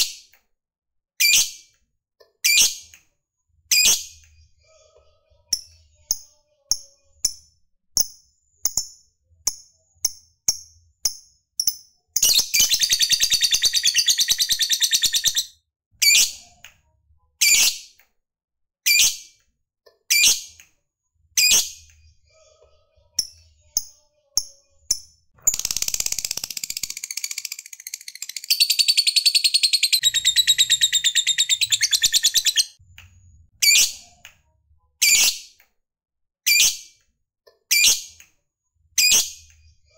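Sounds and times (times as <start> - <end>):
lovebird chirping: 11.6 - 15.5, 25.4 - 32.8
lovebird chattering trills: 25.4 - 32.7.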